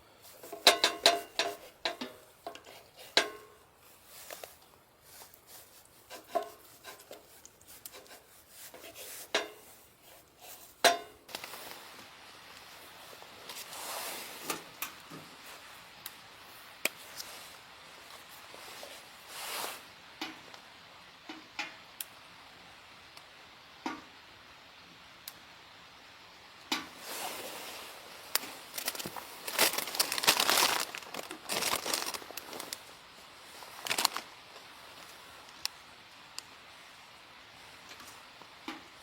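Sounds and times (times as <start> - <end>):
material crinkling and rustling: 0.2 - 13.7, 28.2 - 36.5.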